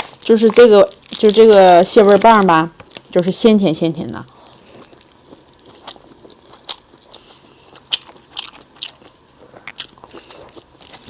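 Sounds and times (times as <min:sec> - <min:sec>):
person chewing: 0:04.3 - 0:11.0.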